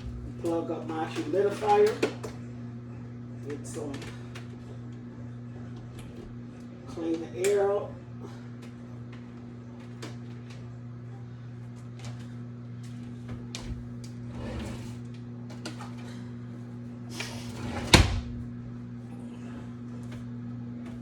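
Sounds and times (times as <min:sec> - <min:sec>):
low electrical hum: 0:00.0 - 0:21.0
cabinet door shutting: 0:17.2 - 0:18.4.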